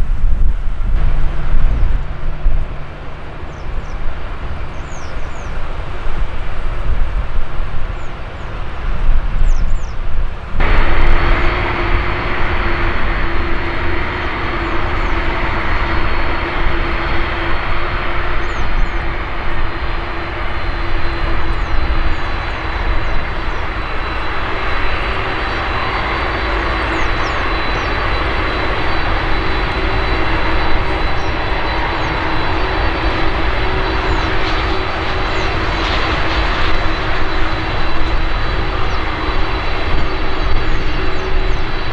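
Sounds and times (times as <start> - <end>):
jet engines running with whine: 0.0 - 41.9.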